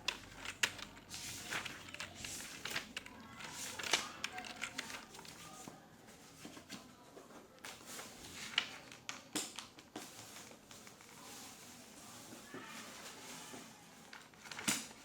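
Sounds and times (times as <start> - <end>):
computer keyboard typing: 0.0 - 5.7.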